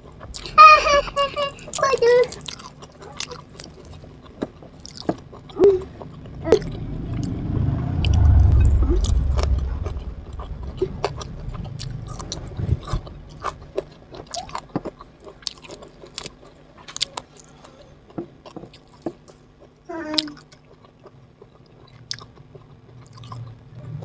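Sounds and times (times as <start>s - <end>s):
person chewing food: 2.3s - 6.4s, 14.2s - 23.5s.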